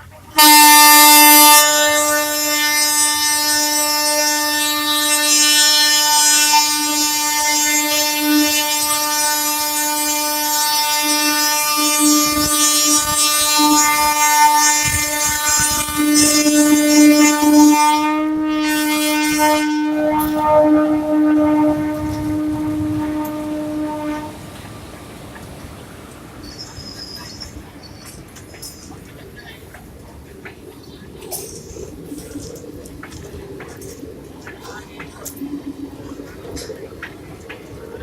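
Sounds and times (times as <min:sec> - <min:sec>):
train running noise: 0:00.0 - 0:38.0
train horn long blast: 0:00.1 - 0:27.1.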